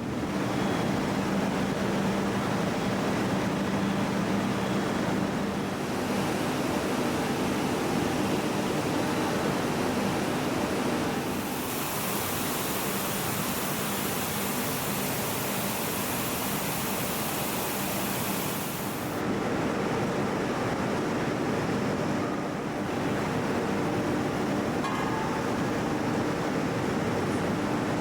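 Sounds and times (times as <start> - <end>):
factory machinery hiss: 5.8 - 19.2.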